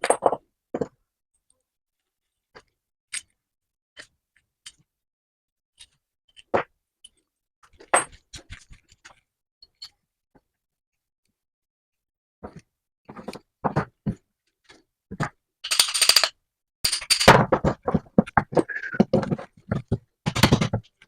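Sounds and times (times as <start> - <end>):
tools tapping and knocking on metal: 12.4 - 21.0.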